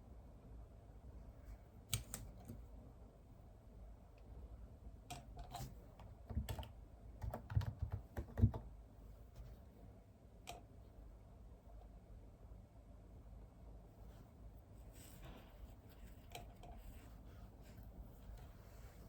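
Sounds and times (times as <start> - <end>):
typing on computer keyboard: 6.3 - 8.7.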